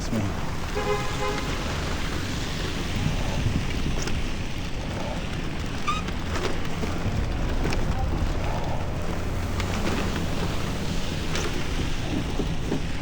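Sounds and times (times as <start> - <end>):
street noise: 0.0 - 13.0
wind buffeting microphone: 0.3 - 13.0.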